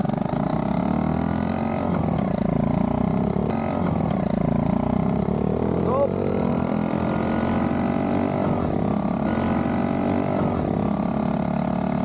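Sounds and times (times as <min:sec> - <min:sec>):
small motorbike engine running: 0:00.0 - 0:12.0.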